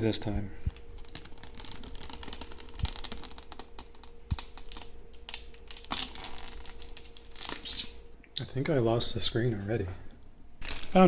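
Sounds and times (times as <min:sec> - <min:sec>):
faint steady hum: 0:00.0 - 0:11.0
packaging clicks and crackles: 0:00.7 - 0:07.7, 0:10.6 - 0:11.0.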